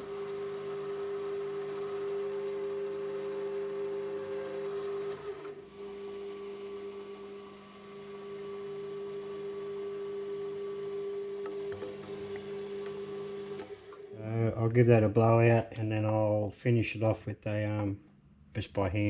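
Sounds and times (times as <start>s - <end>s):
metal lathe whining: 0.0s - 14.2s.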